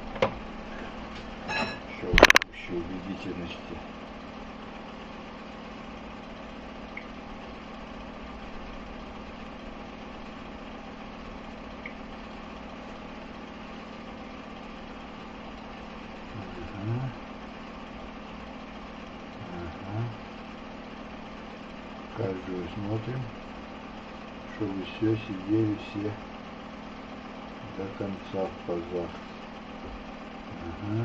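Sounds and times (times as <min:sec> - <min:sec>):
machine humming: 0:00.0 - 0:31.0.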